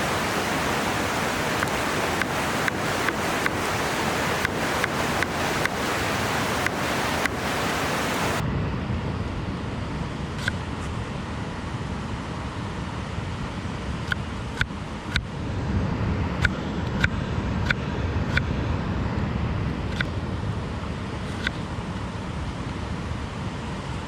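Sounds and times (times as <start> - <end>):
river water rushing: 0.0 - 8.4.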